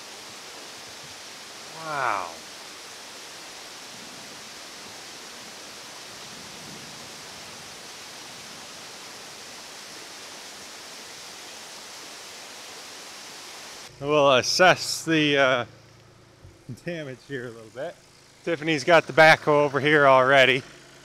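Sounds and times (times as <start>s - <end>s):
rushing flood water: 0.0s - 13.9s.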